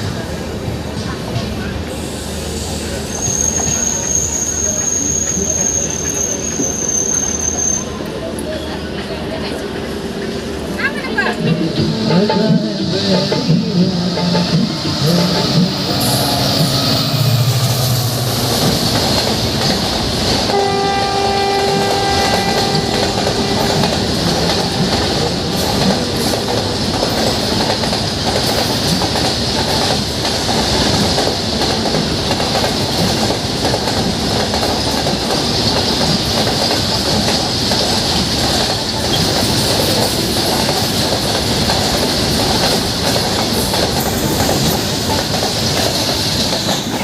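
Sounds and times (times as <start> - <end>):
train wheels clattering: 12.1 - 47.0
two-tone train horn: 20.5 - 25.0.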